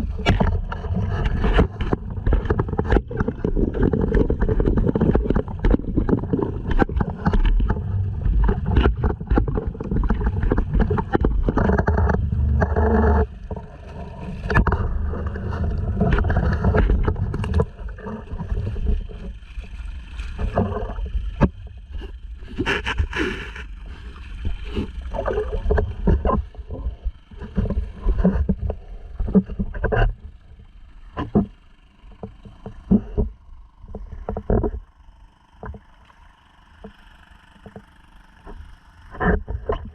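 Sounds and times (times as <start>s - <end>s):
water slapping against kayak hull: 0.0s - 30.2s.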